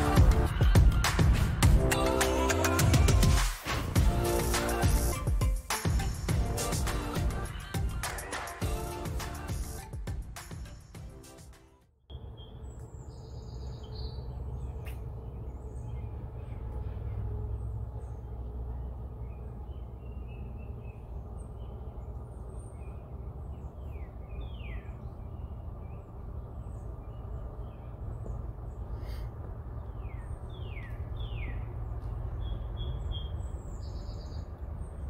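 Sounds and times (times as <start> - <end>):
birds chirping and calling: 12.1 - 35.0
steady low rumble: 12.1 - 35.0.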